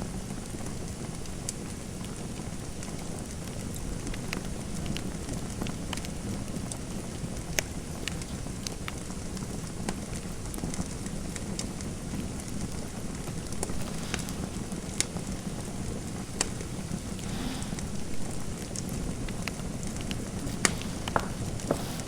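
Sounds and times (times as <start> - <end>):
fire crackling: 0.3 - 22.0
sharp pops of fire: 13.5 - 19.0.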